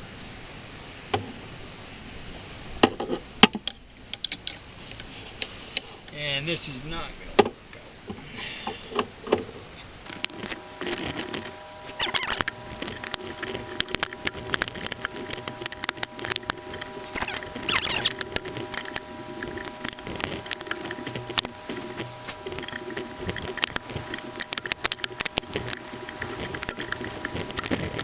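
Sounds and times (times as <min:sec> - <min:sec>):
hand tools clicking and scraping: 0:08.1 - 0:28.0.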